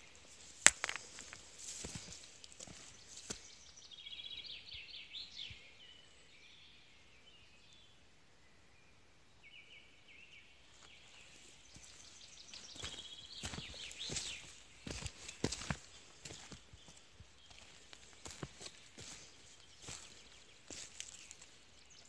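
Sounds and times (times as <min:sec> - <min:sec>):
footsteps crunching on dry twigs: 0:00.0 - 0:03.6, 0:10.8 - 0:22.0
songbirds trilling: 0:00.0 - 0:22.0.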